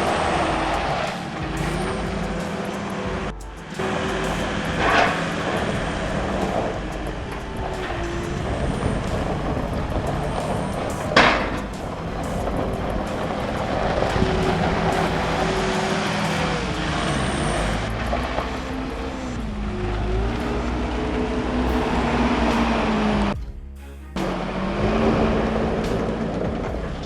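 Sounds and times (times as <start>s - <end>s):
heavy truck engine running: 0.0s - 23.6s, 24.2s - 27.0s.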